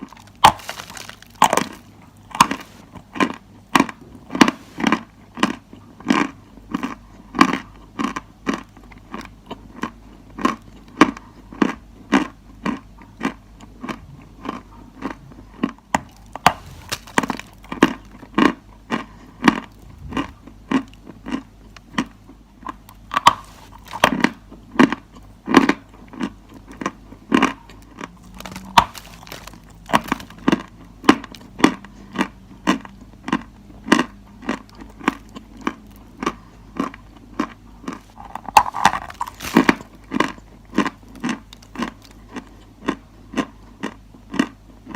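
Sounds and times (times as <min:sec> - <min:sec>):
chalk crunching: 0:00.0 - 0:02.9, 0:04.3 - 0:05.0, 0:16.0 - 0:17.7, 0:23.1 - 0:24.3, 0:28.1 - 0:30.6, 0:37.9 - 0:39.9
faint low hum: 0:00.0 - 0:44.9.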